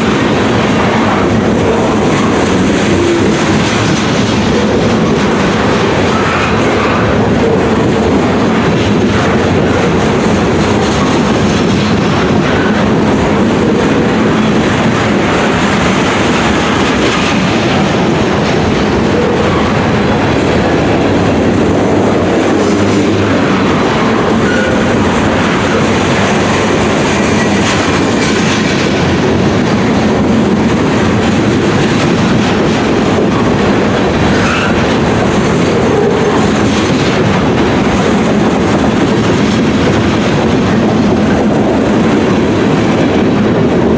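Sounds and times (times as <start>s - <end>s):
freight train wheels rumbling: 0.0s - 43.9s.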